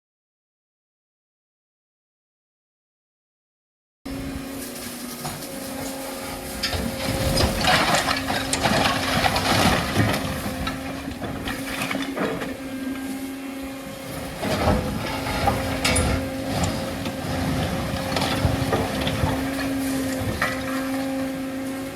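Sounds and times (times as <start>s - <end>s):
demolition machinery running: 4.1s - 21.9s
masonry crunching and scraping: 4.4s - 21.9s.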